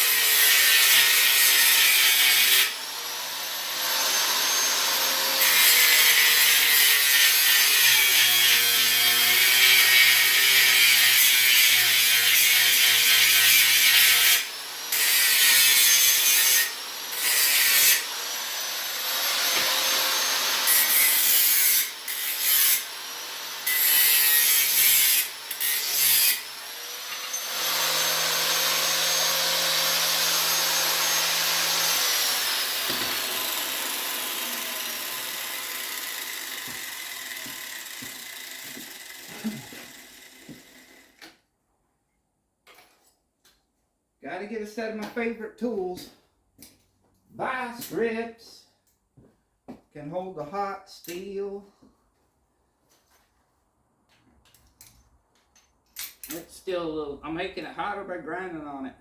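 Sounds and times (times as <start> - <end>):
electric grinder grinding steel: 0.0 - 41.2.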